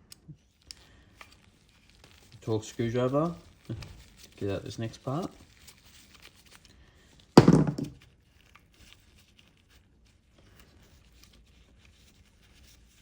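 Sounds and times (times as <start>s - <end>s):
plastic parts handled: 7.4s - 8.5s.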